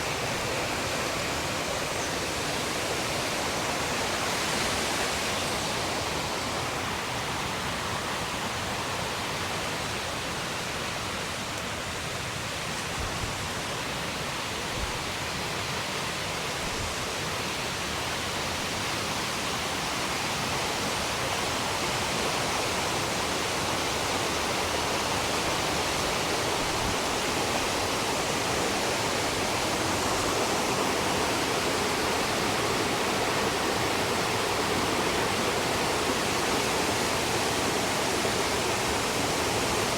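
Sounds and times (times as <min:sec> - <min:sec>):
fast-flowing water rushing: 0:00.0 - 0:39.9.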